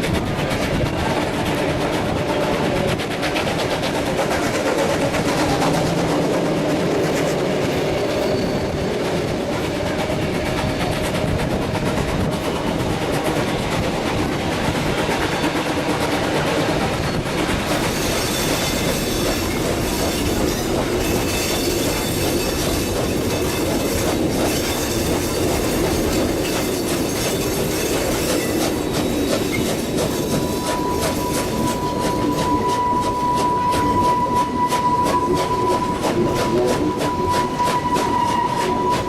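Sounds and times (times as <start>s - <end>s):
train wheels rumbling on rails: 0.0s - 39.0s
thin high squeal: 30.3s - 39.0s.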